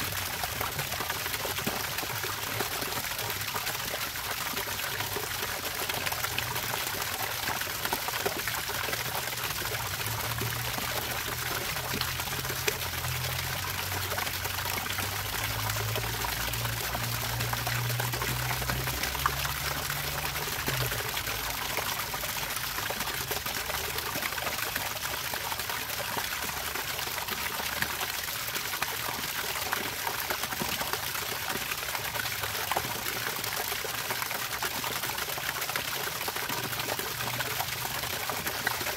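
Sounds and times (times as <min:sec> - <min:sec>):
water pouring and trickling: 0:00.0 - 0:38.9.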